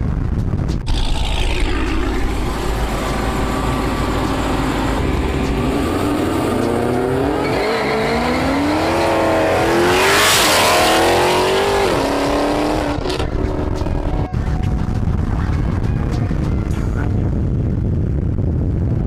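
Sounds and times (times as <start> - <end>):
car engine accelerating hard: 0.9 - 14.3.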